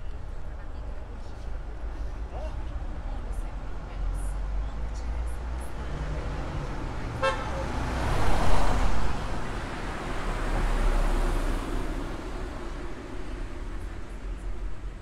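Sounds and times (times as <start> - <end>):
street traffic noise: 0.0 - 15.0
car passing close: 5.4 - 13.9
car horn toot: 7.2 - 7.8.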